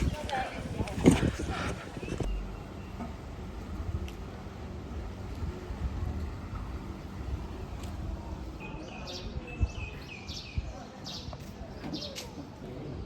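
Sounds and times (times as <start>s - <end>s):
birds chirping: 0.0s - 3.6s, 8.2s - 13.0s.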